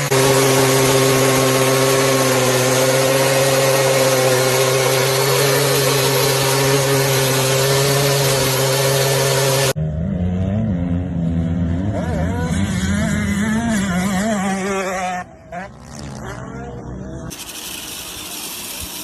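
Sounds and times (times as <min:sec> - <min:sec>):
engine droning steadily: 0:00.0 - 0:19.0.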